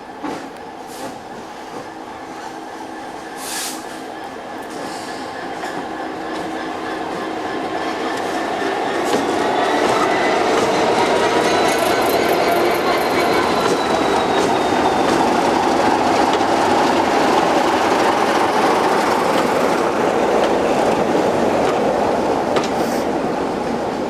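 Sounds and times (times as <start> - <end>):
train wheels rumbling on rail: 0.0 - 24.0
faint high squeal: 9.4 - 15.2
clicks from the track: 22.5 - 22.8.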